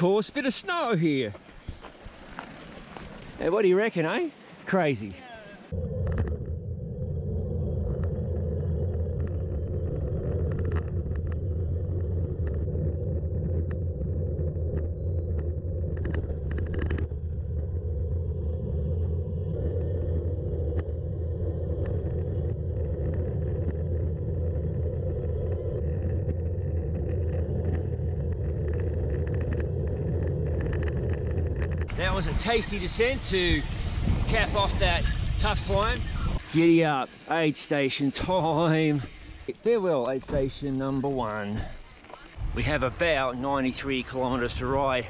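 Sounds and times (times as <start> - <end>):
tyres rolling over gravel: 0.3 - 5.0
stones and bike rattling: 1.0 - 4.2, 8.9 - 17.7, 25.2 - 33.7
wind rumbling on microphone: 5.6 - 36.6, 40.3 - 45.0.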